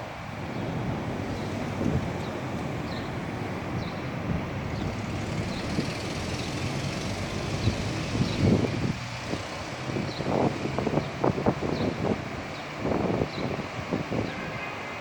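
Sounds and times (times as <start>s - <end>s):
wind buffeting microphone: 0.0s - 14.6s
strong wind: 0.0s - 15.0s
traffic noise: 0.0s - 15.0s.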